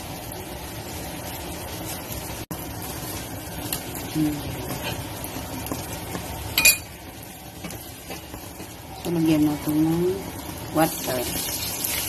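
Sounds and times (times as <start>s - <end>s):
garlic sizzling in hot oil: 0.0s - 12.0s.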